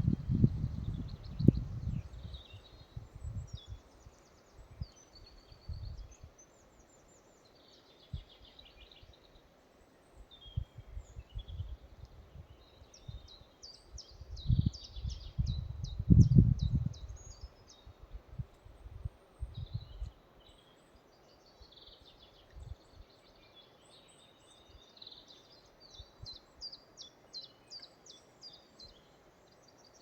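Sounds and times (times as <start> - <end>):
wind rumble on microphone: 0.0 - 6.3, 10.4 - 20.2, 22.5 - 23.1
songbirds chirping and trilling: 0.0 - 30.0.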